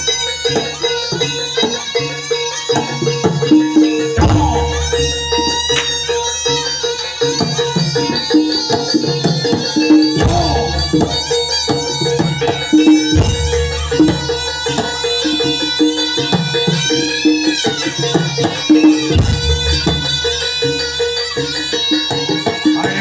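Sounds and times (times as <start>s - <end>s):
reedy wind instrument melody: 0.0s - 23.0s
hand drumming: 3.3s - 6.2s, 8.4s - 14.4s
deep drum strikes: 4.2s - 5.3s.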